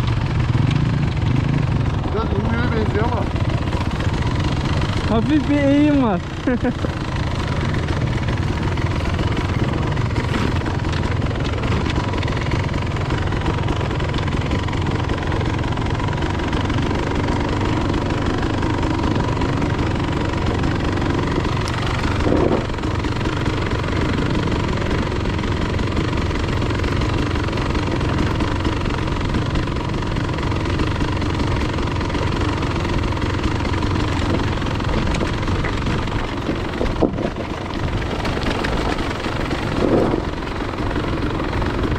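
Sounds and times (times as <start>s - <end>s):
dirt bike engine running: 0.0s - 41.9s.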